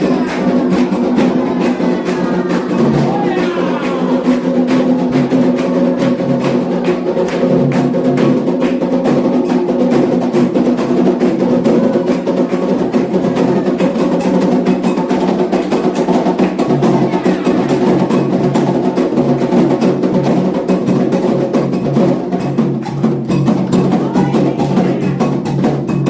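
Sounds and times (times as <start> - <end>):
voices chanting held tones: 0.0 - 8.0, 15.9 - 19.0, 22.8 - 25.6
hand drums playing fast rhythm: 0.0 - 26.0.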